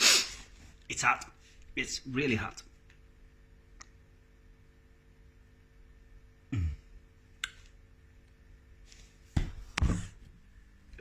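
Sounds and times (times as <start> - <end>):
man sniffing: 0.0 - 0.5
faint steady hum: 0.0 - 11.0
man grunting: 6.5 - 6.8.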